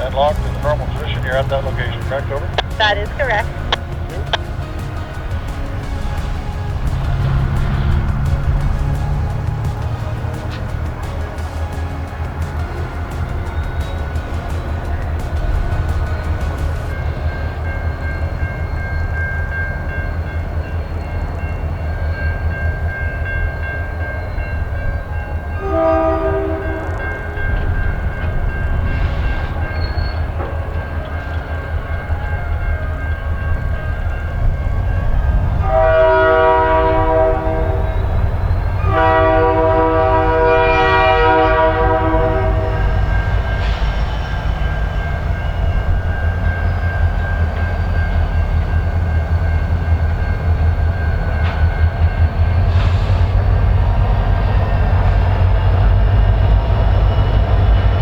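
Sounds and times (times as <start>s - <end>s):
locomotive horn blasts: 0.0s - 19.2s, 22.5s - 47.7s
diesel locomotive rumble: 0.0s - 58.0s.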